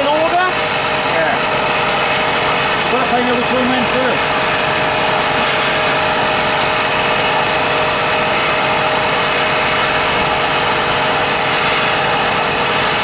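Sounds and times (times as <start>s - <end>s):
machine roaring steadily: 0.0s - 13.0s.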